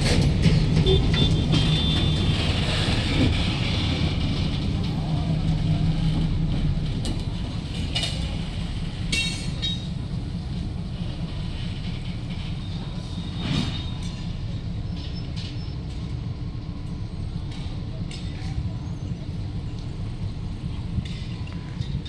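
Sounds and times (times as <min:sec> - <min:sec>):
wheels squealing on rail: 0:00.0 - 0:06.2, 0:10.6 - 0:16.3
train rumbling: 0:00.0 - 0:22.0.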